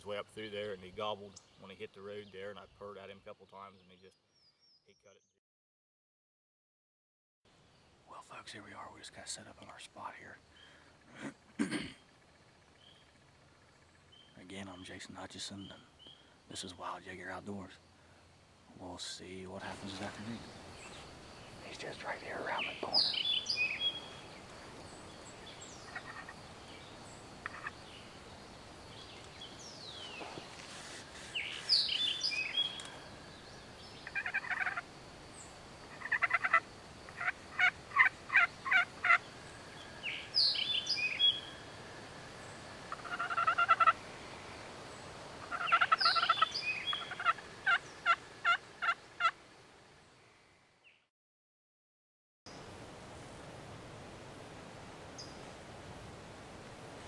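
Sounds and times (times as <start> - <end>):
songbirds chirping: 0.0 - 5.4, 7.5 - 51.1, 52.5 - 57.0
wild turkey gobbling: 25.4 - 26.4, 27.4 - 28.0, 34.0 - 34.9, 35.8 - 41.6, 42.9 - 44.0, 45.4 - 49.4.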